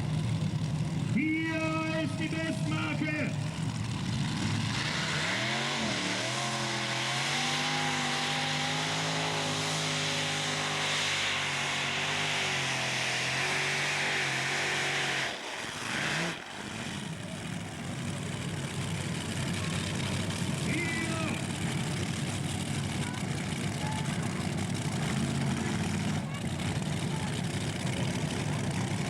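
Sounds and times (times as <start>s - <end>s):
tractor engine revving at full power: 0.0s - 29.0s.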